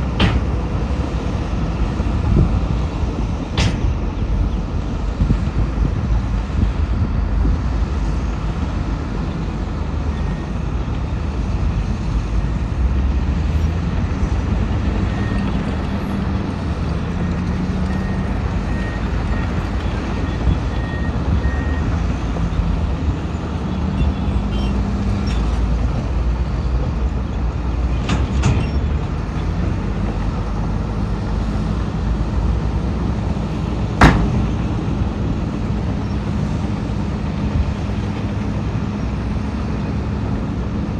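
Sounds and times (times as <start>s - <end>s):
heavy machinery diesel engines: 0.0s - 40.9s.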